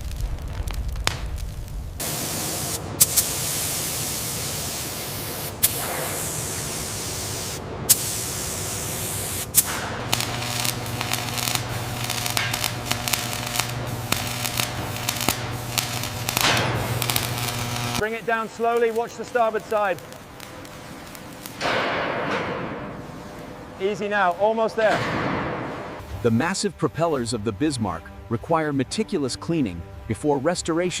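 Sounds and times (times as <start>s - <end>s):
spray-like hiss: 2.0s - 21.6s
low machine hum: 6.4s - 18.0s.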